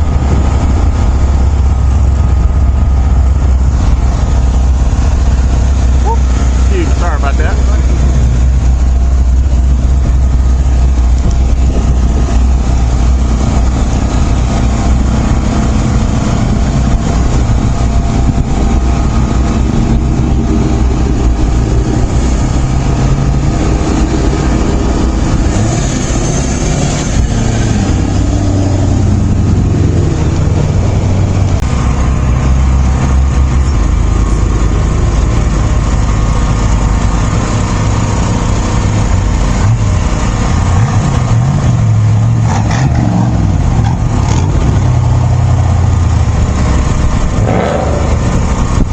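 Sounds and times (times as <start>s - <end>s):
vehicle engine running: 0.0s - 48.9s.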